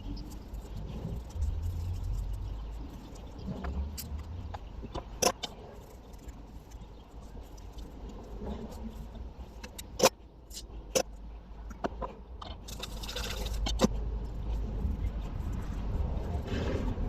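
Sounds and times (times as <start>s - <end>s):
small objects clicking and knocking: 9.6s - 14.0s.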